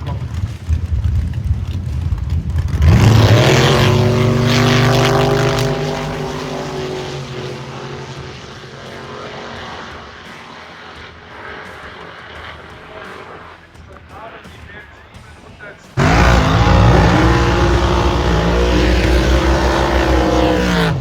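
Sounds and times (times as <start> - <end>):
drag car engine launching: 2.6 - 10.6, 16.0 - 21.0.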